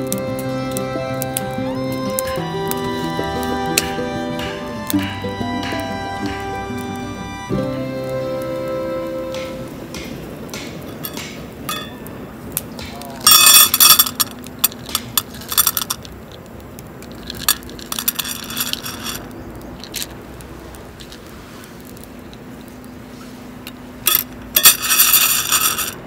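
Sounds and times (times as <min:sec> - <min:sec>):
metal gear clinking and rattling: 0:13.3 - 0:16.0, 0:17.2 - 0:19.2, 0:24.1 - 0:26.0.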